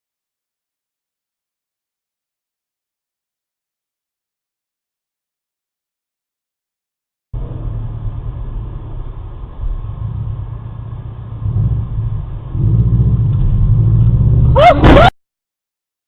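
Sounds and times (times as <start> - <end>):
vehicle driving rumble: 7.4 - 15.1.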